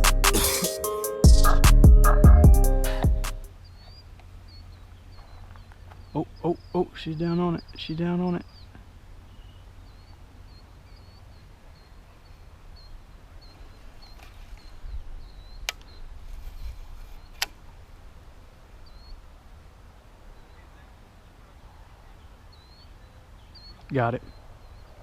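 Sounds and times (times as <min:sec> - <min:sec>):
faint high chirping: 0:03.5 - 0:16.1.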